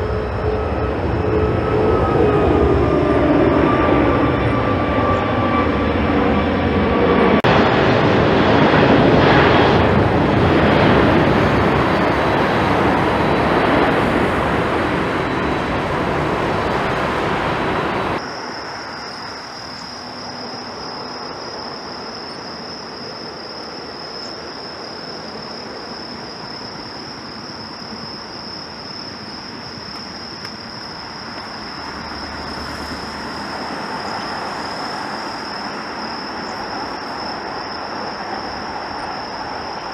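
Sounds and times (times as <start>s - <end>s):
high-pitched whine: 0.0s - 29.1s
jet engines roaring: 0.0s - 39.9s.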